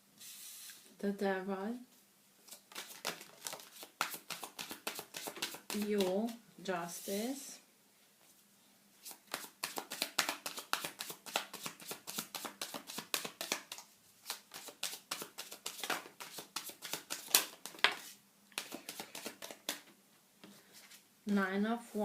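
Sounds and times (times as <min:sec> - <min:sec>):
cards being shuffled: 0:02.5 - 0:06.2, 0:09.0 - 0:19.9.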